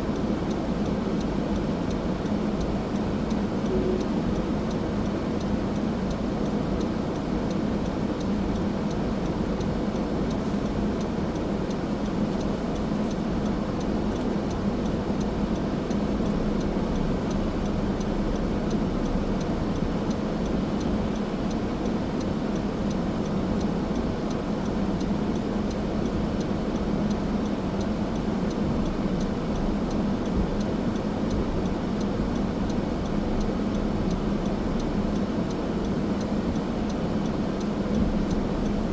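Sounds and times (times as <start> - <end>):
car engine hum: 37.3 - 38.9.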